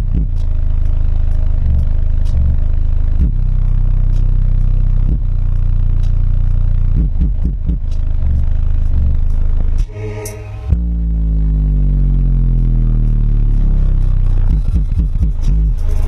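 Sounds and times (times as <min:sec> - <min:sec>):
deep bass from subwoofers: 0:00.0 - 0:16.0
sliding bass sweeps: 0:00.0 - 0:16.0.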